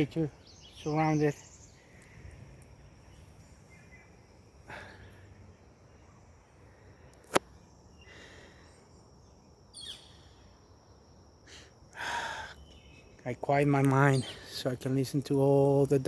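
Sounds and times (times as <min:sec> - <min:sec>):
high-pitched insect trill: 0:07.6 - 0:16.0.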